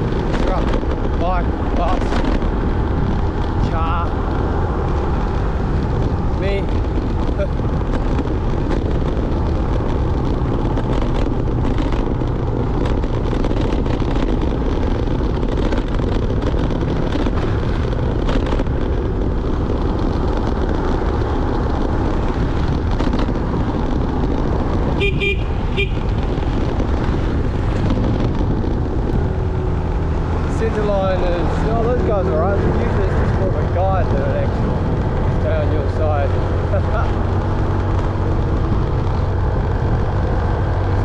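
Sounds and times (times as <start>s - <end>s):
wind and road noise: 0.0s - 41.0s
vehicle horn beeps: 25.0s - 26.1s.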